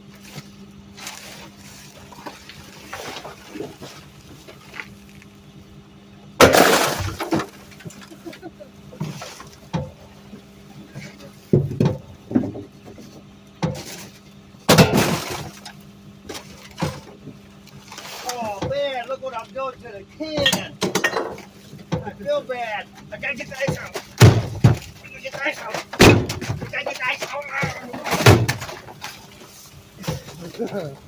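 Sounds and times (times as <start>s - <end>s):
truck engine hum: 0.0s - 31.0s
ice breaking loose: 6.4s - 7.5s
trash can banging on metal: 14.7s - 15.6s, 23.6s - 29.0s.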